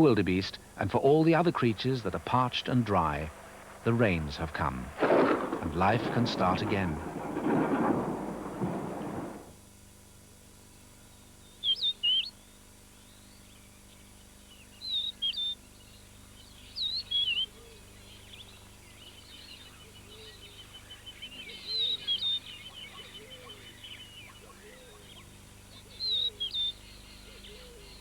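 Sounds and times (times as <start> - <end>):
fast run of bird notes: 0.0 - 9.6
faint bird chirping: 11.1 - 28.0
lower bird calls: 14.6 - 28.0
bird whistled call: 19.4 - 28.0.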